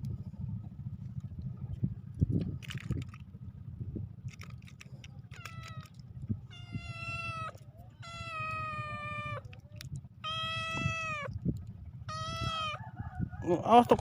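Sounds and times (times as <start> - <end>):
cat meowing: 5.3 - 9.6, 10.2 - 11.4, 12.1 - 12.8.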